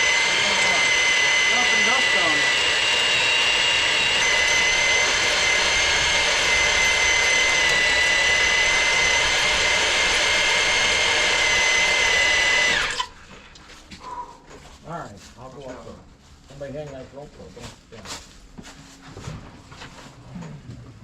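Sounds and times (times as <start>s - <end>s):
machine high-pitched whine: 0.0s - 13.1s.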